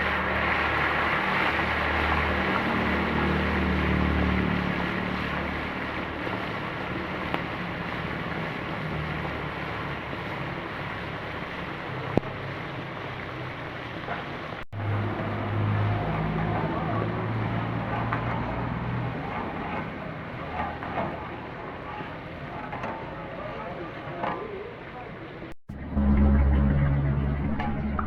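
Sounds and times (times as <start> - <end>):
low hum: 25.7 - 28.0.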